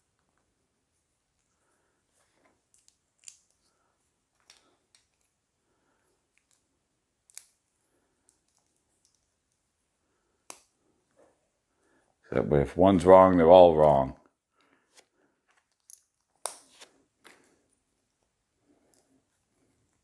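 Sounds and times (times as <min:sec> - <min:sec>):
plastic pieces snapping together: 0:07.2 - 0:07.6.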